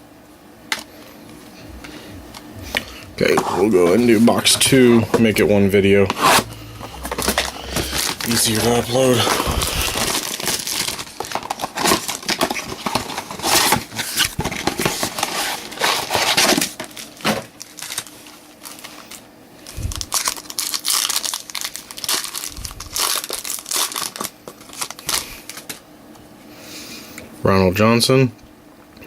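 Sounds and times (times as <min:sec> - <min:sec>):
packaging crinkling: 0:02.7 - 0:25.8
wrapping torn open by hand: 0:06.2 - 0:25.8.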